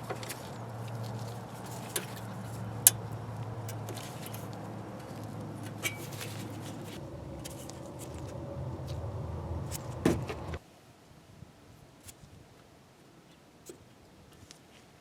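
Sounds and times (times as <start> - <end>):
low machine hum: 2.3 - 10.6.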